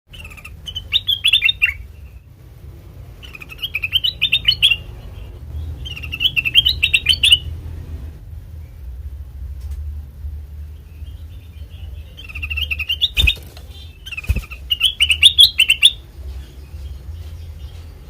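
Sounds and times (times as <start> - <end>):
bird chirping bubbling song: 0.1 - 2.3, 3.2 - 7.6, 10.7 - 18.0
steady low hum: 0.1 - 18.0.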